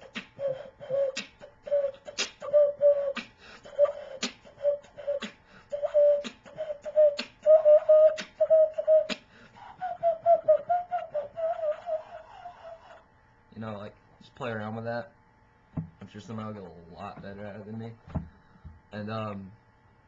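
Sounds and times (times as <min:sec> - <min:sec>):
beatboxing: 0:00.0 - 0:13.0
cupped-hand whistle notes: 0:00.0 - 0:13.0.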